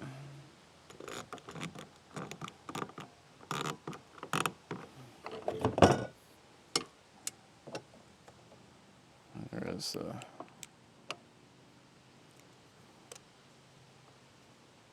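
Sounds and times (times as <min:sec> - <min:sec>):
metal crossbar clicks and scrapes: 0:00.9 - 0:05.6.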